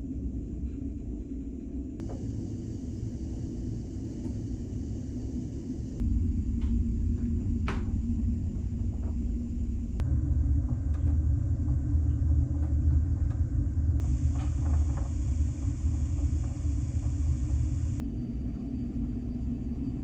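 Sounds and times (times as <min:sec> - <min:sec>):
high hiss: 0:02.0 - 0:06.6, 0:14.0 - 0:18.0
ferry engine rumble: 0:02.0 - 0:18.0.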